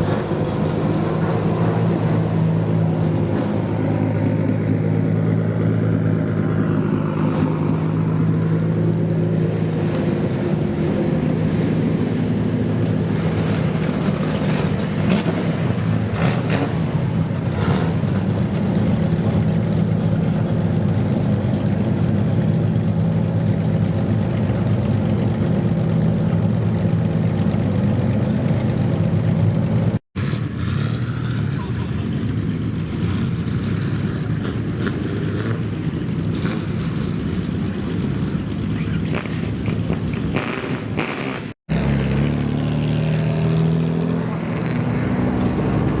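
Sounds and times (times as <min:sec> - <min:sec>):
car engine running: 0:00.0 - 0:30.6.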